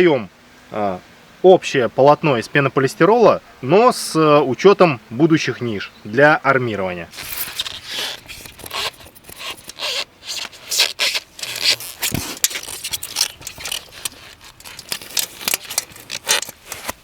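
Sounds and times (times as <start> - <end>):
foam boards scraping and clicking: 7.1 - 17.0.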